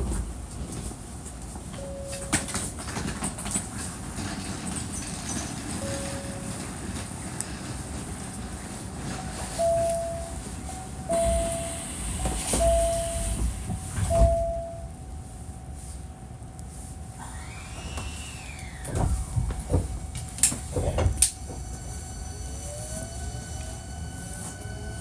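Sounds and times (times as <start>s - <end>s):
train running rumble and hiss: 0.0s - 25.0s
wheel clunks: 1.8s - 14.9s
short beeps: 9.6s - 10.4s, 11.1s - 13.5s, 14.1s - 14.9s.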